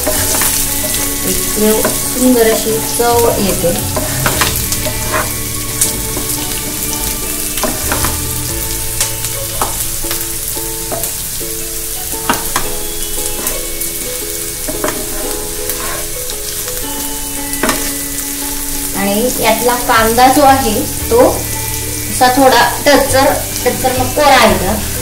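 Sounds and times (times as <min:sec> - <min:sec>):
wooden spatula scraping a pan: 0:00.0 - 0:08.4, 0:12.3 - 0:16.6
onions sizzling in hot oil: 0:00.0 - 0:25.0.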